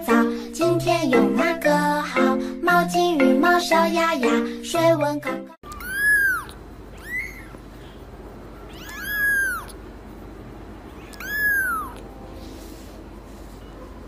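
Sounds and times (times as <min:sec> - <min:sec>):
kitten mewing: 0:05.6 - 0:07.8, 0:08.6 - 0:09.8, 0:10.9 - 0:12.1.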